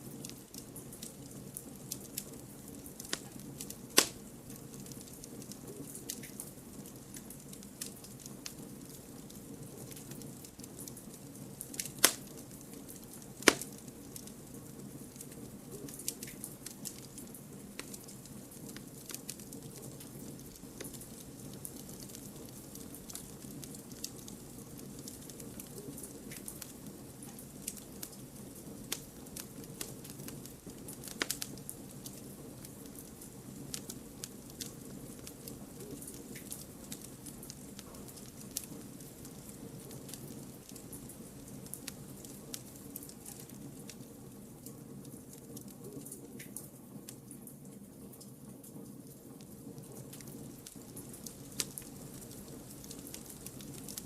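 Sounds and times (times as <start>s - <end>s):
campfire crackling: 0.0s - 47.4s, 49.0s - 54.0s
campfire low rush: 0.0s - 47.4s, 48.9s - 54.0s
loud sharp fire pops: 3.9s - 4.3s, 11.7s - 12.4s, 13.4s - 13.8s.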